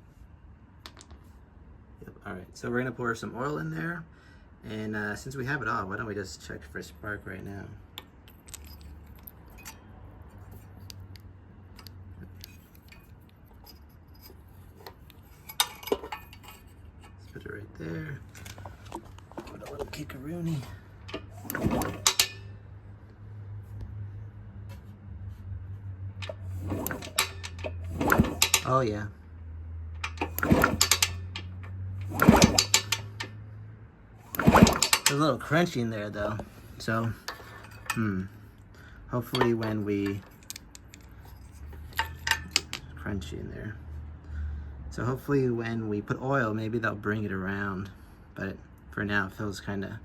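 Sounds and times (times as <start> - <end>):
metal tools clinking: 8.3 - 10.9, 11.8 - 22.6, 26.2 - 29.0, 30.0 - 33.4, 34.3 - 35.6, 36.2 - 38.4, 39.3 - 42.9
engine turning over with clatter: 18.0 - 22.7, 26.1 - 29.0, 29.9 - 33.4, 34.2 - 38.4
sharp metal clanks: 19.4 - 22.6, 26.2 - 28.8, 30.0 - 33.3, 34.3 - 35.3.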